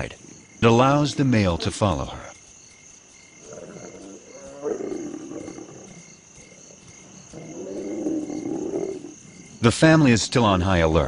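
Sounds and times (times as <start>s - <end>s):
crickets chirping: 0.0s - 11.0s
lions growling: 3.4s - 9.7s.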